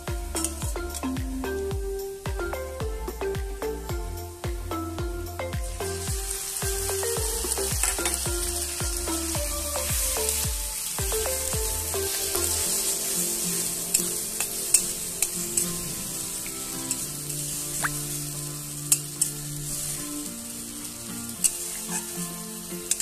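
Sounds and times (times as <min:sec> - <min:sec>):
potatoes sizzling in oil: 0:05.7 - 0:23.0.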